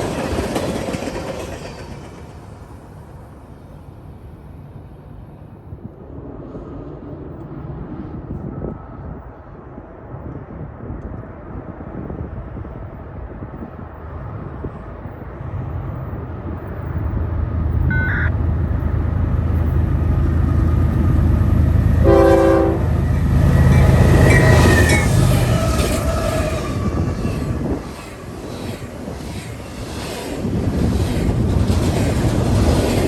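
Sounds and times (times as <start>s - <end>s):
train rumbling past: 0.0s - 33.0s
train horn blasts: 22.0s - 25.1s.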